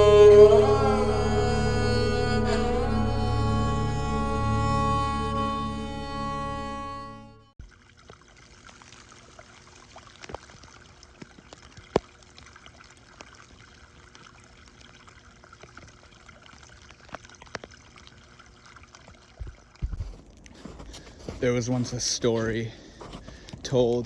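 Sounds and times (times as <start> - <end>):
water trickling: 7.6 - 24.0.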